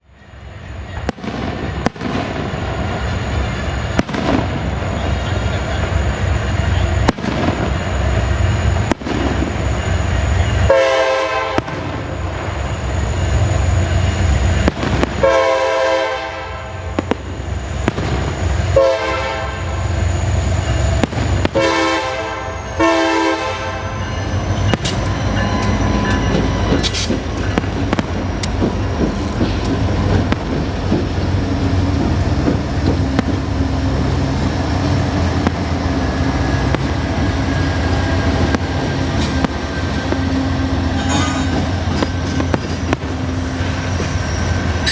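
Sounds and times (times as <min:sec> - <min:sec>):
diesel locomotives rumbling past: 0:00.0 - 0:44.9
fireworks bangs: 0:01.0 - 0:10.2, 0:11.3 - 0:12.6, 0:14.5 - 0:15.8, 0:16.7 - 0:19.4, 0:20.9 - 0:22.2, 0:26.3 - 0:37.6, 0:38.2 - 0:40.9, 0:41.5 - 0:44.1
locomotive horn blasts: 0:10.5 - 0:11.9, 0:15.2 - 0:17.0, 0:18.7 - 0:19.9, 0:21.5 - 0:26.9.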